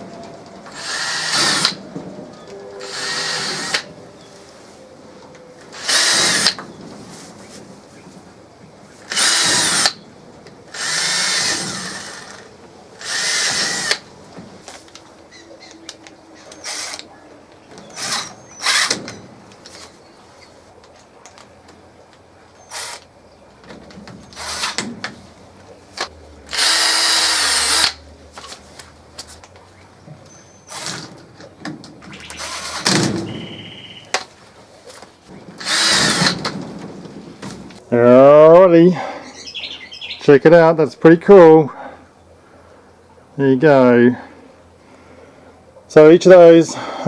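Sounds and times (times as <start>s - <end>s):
power drill running: 0.7s - 1.8s, 2.8s - 3.9s, 5.7s - 6.6s, 9.1s - 10.0s, 10.7s - 14.0s, 16.6s - 17.0s, 18.0s - 19.0s, 24.4s - 24.8s, 26.5s - 28.0s, 32.4s - 32.9s, 35.6s - 36.5s.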